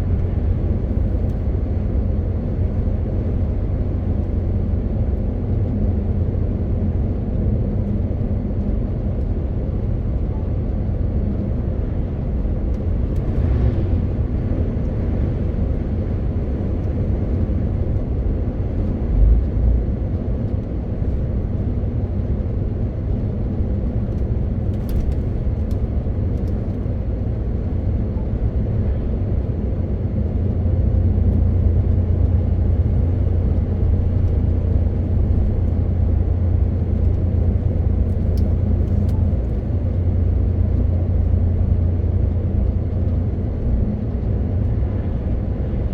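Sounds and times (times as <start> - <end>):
tyre and road noise: 11.2 - 45.9.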